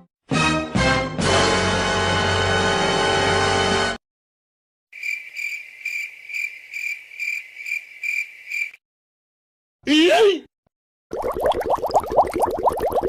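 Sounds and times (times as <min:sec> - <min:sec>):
crickets chirping: 0:05.0 - 0:08.8.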